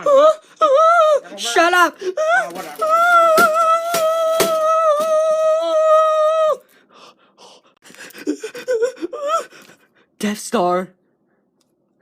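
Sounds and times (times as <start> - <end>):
person wailing: 0.0 - 6.6.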